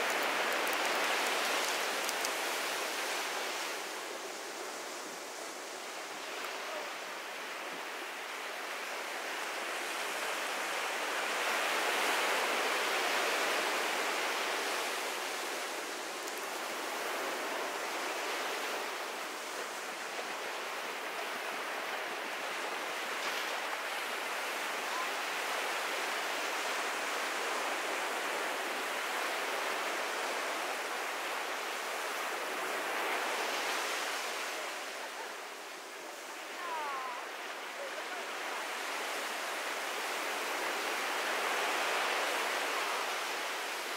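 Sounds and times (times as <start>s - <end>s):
ocean surf on beach: 0.0s - 43.9s.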